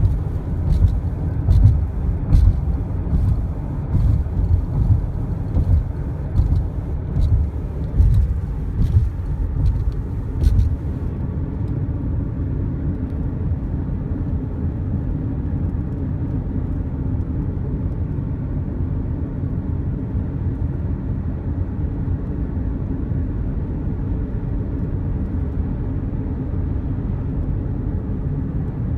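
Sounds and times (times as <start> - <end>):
thumps and sharp clicks: 0.0 - 11.1
road and wind noise: 0.0 - 28.9.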